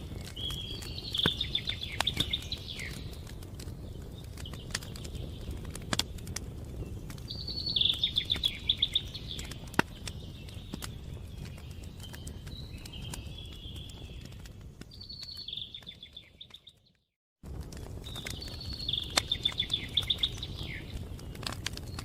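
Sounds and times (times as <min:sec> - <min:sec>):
songbird chirping: 0:00.0 - 0:17.1, 0:18.0 - 0:22.0
wood fire crackling: 0:00.0 - 0:22.0.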